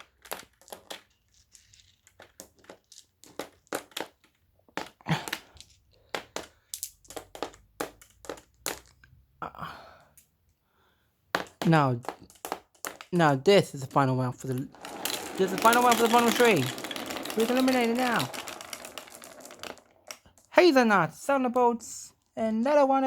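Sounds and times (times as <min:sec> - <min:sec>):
glass marbles clicking: 0:04.8 - 0:09.2, 0:13.9 - 0:20.5.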